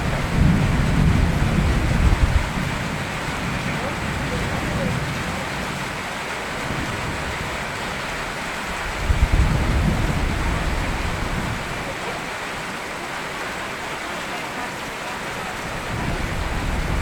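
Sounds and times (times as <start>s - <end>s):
thunder rumble: 0.0s - 6.0s, 8.7s - 12.0s, 15.6s - 17.0s
steady rain: 0.0s - 17.0s.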